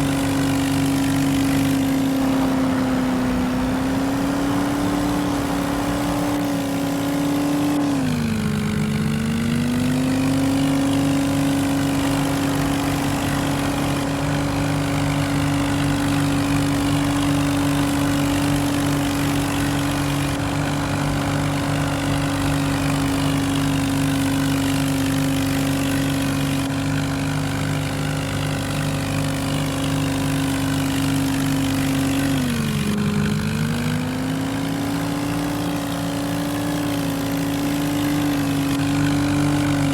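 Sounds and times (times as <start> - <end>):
engine straining at high revs: 0.0 - 39.9.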